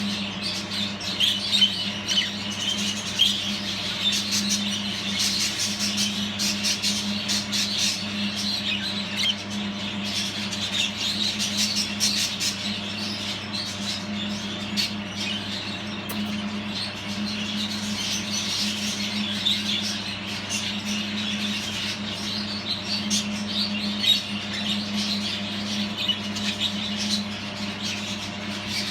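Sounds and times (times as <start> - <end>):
budgerigars chattering and warbling: 0.0 - 28.9
steady low hum: 0.0 - 28.9.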